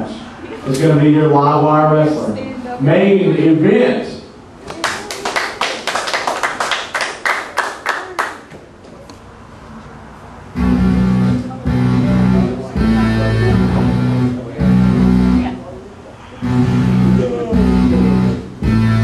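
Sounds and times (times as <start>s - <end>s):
crowd clapping: 4.7s - 8.5s
heavy guitar entrance music: 10.6s - 15.6s, 16.4s - 19.0s.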